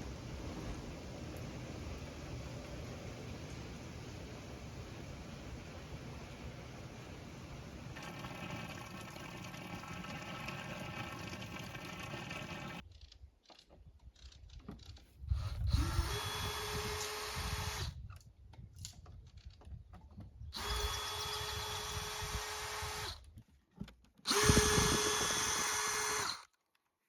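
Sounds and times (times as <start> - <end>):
power drill whining: 15.7 - 18.0, 20.6 - 23.3, 24.3 - 26.5.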